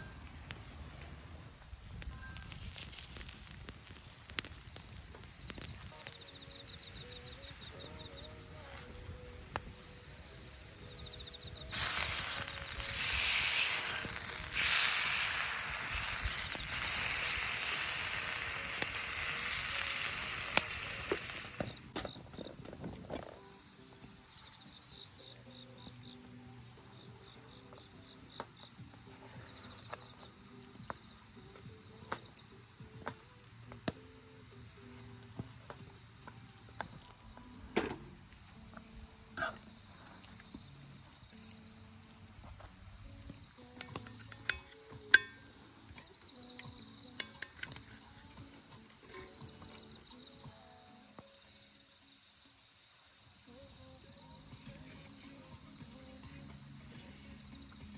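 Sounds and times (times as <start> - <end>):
campfire crackling and popping: 0.0 - 22.0, 29.5 - 50.6
food sizzling in a pan: 2.2 - 21.9.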